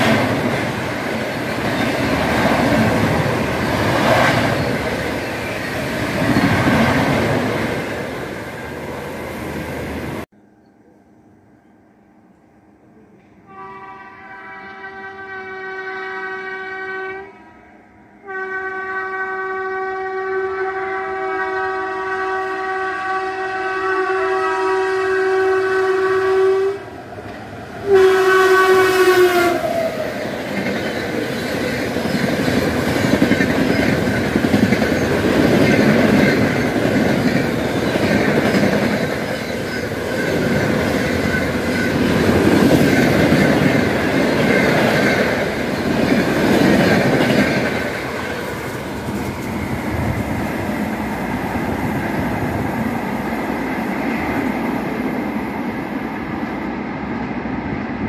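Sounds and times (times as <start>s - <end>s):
train wheels rumbling on rails: 0.0s - 10.3s, 25.5s - 58.0s
locomotive horn blasts: 13.4s - 27.0s, 27.8s - 30.0s.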